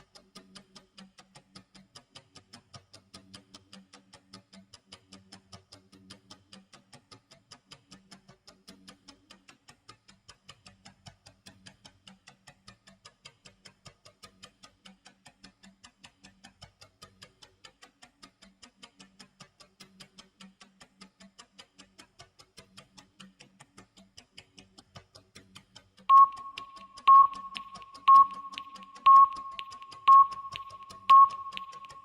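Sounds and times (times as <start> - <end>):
clock ticking: 26.1 - 32.0
high timer beep: 26.1 - 32.0.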